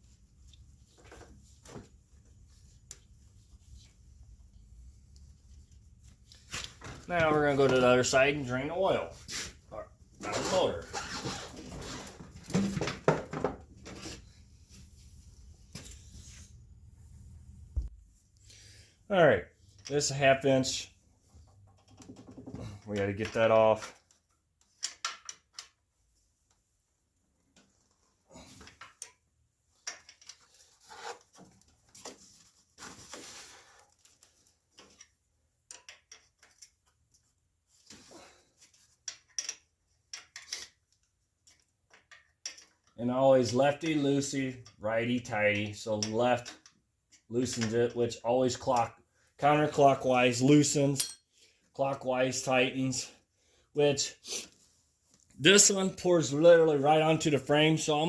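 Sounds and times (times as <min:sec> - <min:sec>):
rustling and handling knocks: 0:11.0 - 0:14.3.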